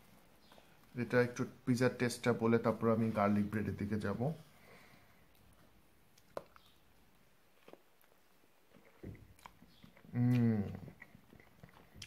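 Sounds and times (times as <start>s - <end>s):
man chewing food: 4.8s - 12.0s
soft mouth clicks: 9.4s - 12.0s
man humming in enjoyment: 10.1s - 10.9s.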